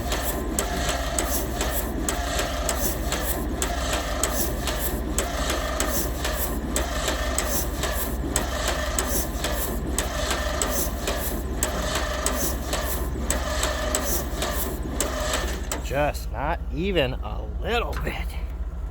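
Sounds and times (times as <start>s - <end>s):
tractor engine cranking: 0.1s - 16.3s.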